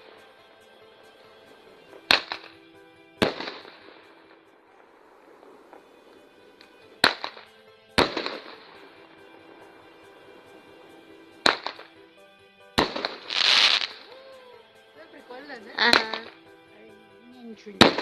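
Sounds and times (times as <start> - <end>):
fireworks bangs: 3.2 - 12.0, 12.8 - 14.0, 17.8 - 18.0.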